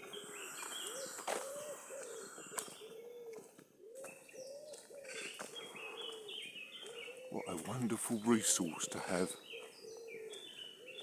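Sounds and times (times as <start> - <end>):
pigeon cooing: 0.0 - 5.4
songbirds chirping: 0.0 - 11.0.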